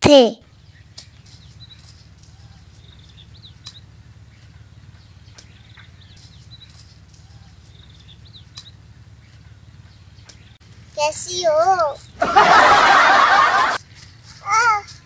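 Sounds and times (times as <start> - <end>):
small bird chirps: 0.5 - 10.6.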